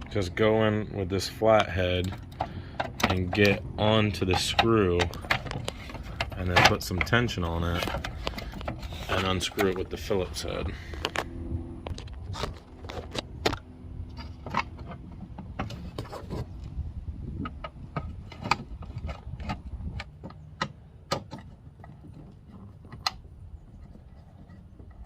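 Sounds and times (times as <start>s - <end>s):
metal tools clicking and scraping: 1.3s - 11.2s.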